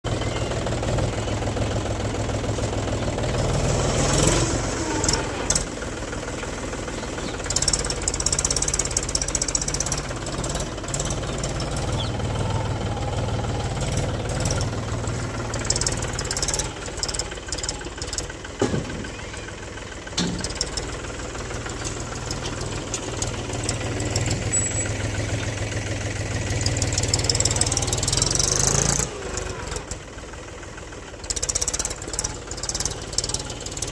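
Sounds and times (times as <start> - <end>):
tractor diesel engine running: 0.0 - 33.9
short metallic clanks: 20.2 - 20.9.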